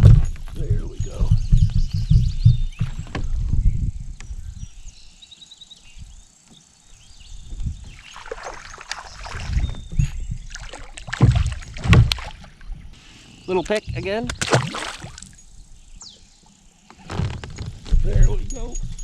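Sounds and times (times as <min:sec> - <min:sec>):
knocks and rubbing in kayak: 0:00.0 - 0:03.8, 0:07.6 - 0:12.6, 0:13.7 - 0:14.5, 0:16.9 - 0:19.0.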